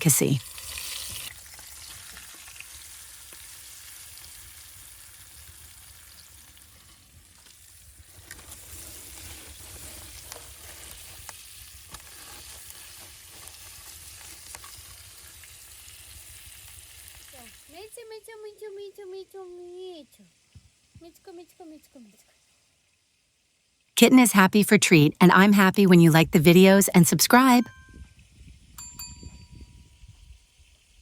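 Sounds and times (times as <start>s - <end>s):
oil crackling: 0.4s - 17.7s
fish sizzling in hot oil: 0.4s - 23.9s.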